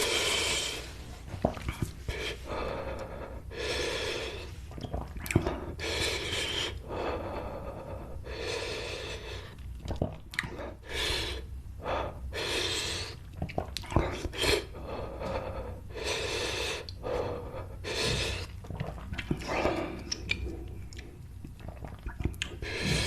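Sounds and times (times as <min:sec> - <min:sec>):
person breathing hard through mouth: 0:00.0 - 0:09.6, 0:10.4 - 0:20.7, 0:22.5 - 0:23.0
mouth clicks and smacks: 0:01.3 - 0:02.3, 0:04.7 - 0:05.6, 0:09.4 - 0:10.6, 0:13.2 - 0:15.4, 0:18.0 - 0:23.0.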